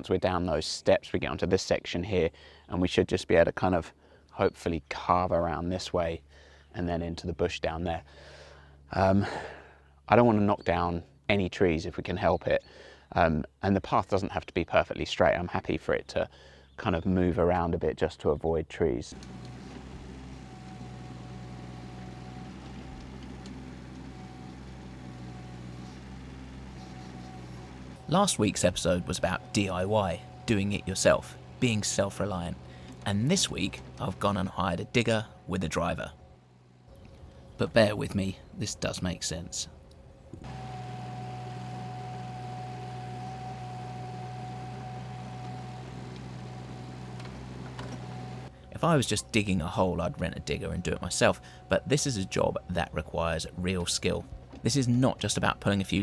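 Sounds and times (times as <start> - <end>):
engine idling hum: 3.8 - 12.0, 19.1 - 56.0
thin steady whine: 22.6 - 45.9.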